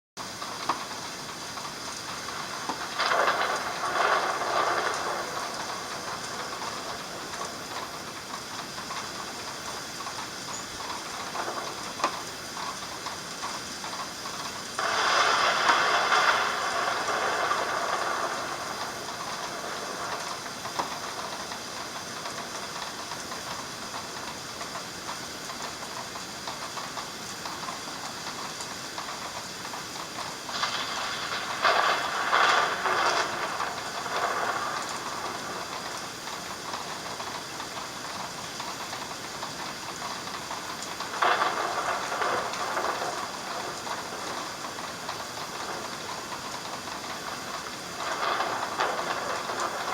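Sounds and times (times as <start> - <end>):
heavy rain hissing: 0.2 - 49.9.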